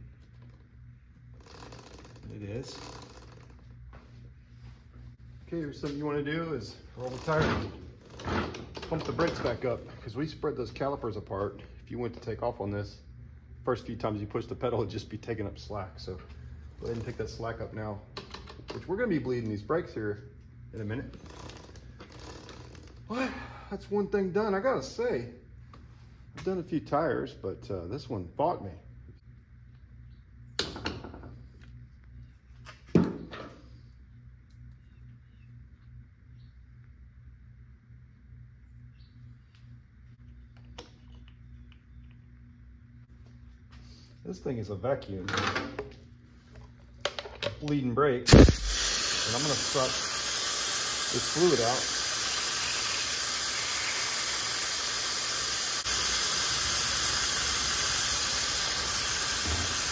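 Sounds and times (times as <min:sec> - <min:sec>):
steady low hum: 0:00.0 - 0:59.9
vacuum brake bleeder hissing: 0:48.3 - 0:59.9.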